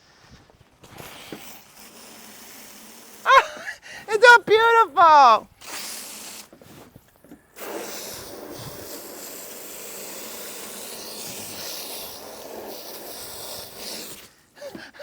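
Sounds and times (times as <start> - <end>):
high-pressure water spray hissing: 1.0 - 3.2, 5.6 - 6.6, 7.6 - 14.8.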